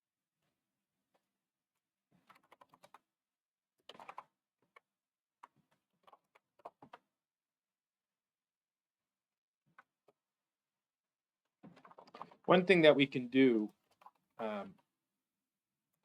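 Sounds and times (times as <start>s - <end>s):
faint keyboard typing: 2.2s - 3.1s, 3.8s - 7.1s.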